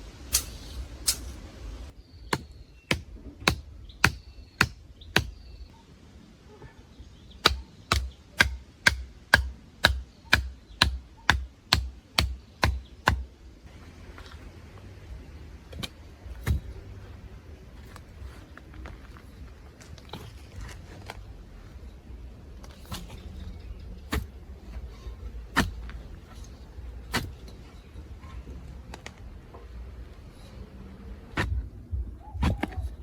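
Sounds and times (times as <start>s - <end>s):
hand tool striking: 0.3s - 1.4s, 2.3s - 5.4s, 7.4s - 13.3s.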